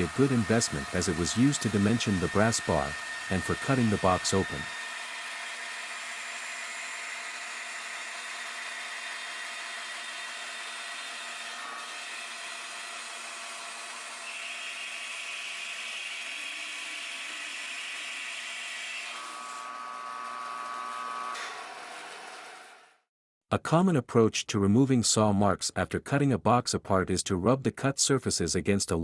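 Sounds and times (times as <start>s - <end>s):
whining tone: 0.0s - 5.6s
bandsaw cutting wood: 0.0s - 23.0s.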